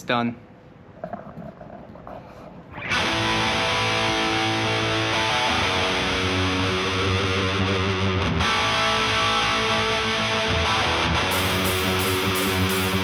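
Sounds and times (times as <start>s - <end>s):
distorted electric guitar rock: 2.7s - 13.0s.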